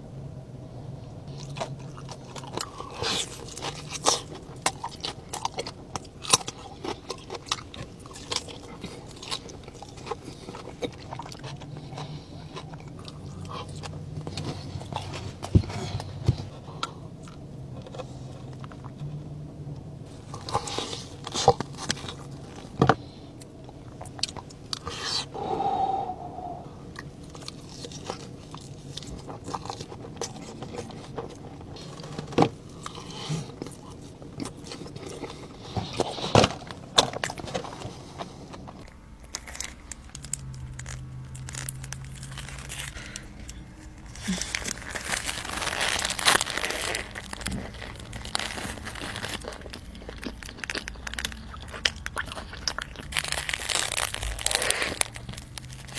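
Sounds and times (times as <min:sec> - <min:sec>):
crunchy chewing: 0:01.0 - 0:55.9
paper wrapper crinkling: 0:38.8 - 0:55.9.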